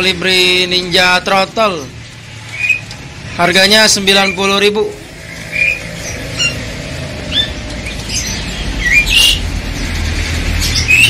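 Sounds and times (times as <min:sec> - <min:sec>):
songbirds chirping and squawking: 0:00.0 - 0:11.0
low rumble: 0:04.9 - 0:10.6.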